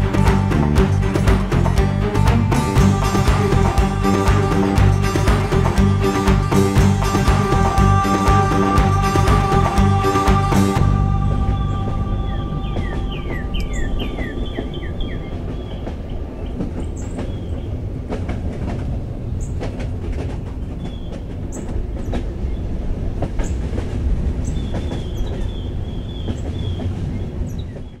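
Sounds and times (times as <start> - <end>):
train rumbling over viaduct: 0.0 - 28.0
birds chirping: 2.7 - 17.8.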